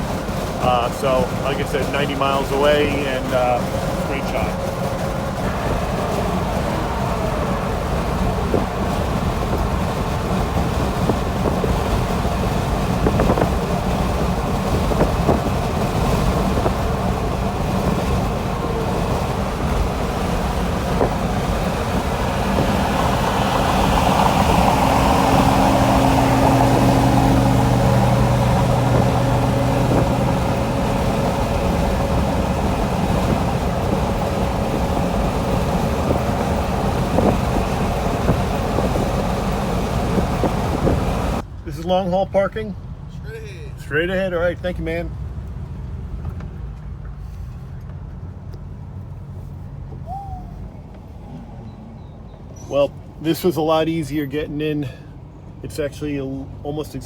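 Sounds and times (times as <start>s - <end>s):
low hum: 0.0s - 41.4s
car cabin road and engine noise: 0.0s - 57.0s.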